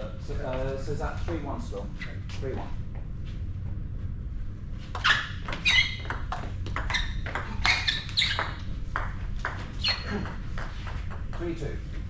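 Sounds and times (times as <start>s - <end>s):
shoes squeaking on floor: 5.0s - 8.7s, 9.7s - 10.2s.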